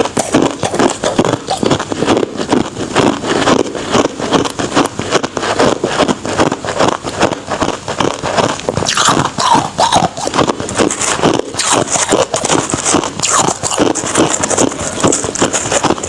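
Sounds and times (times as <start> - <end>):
ice crunching while chewed: 0.0 - 5.8, 6.4 - 16.0.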